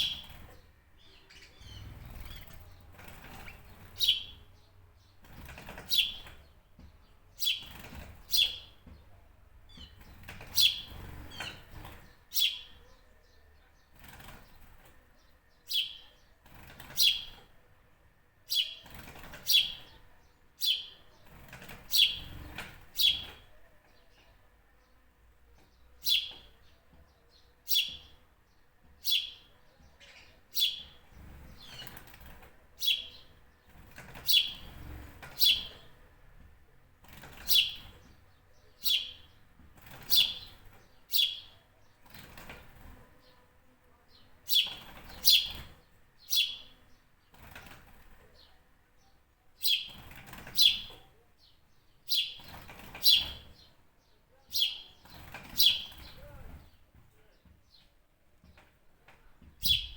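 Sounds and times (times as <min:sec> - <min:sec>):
bird chirping sharp and high: 0:03.4 - 0:04.4, 0:07.4 - 0:08.7, 0:09.8 - 0:11.7, 0:21.9 - 0:22.4, 0:32.8 - 0:33.3, 0:34.2 - 0:35.8, 0:37.3 - 0:38.0, 0:38.8 - 0:39.3, 0:40.0 - 0:41.6, 0:44.5 - 0:46.8, 0:49.6 - 0:51.0, 0:52.1 - 0:53.7, 0:54.5 - 0:56.4, 0:59.6 - 0:59.9.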